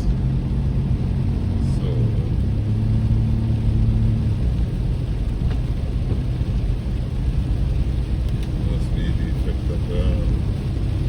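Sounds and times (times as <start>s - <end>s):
car road rumble from inside: 0.0s - 11.0s.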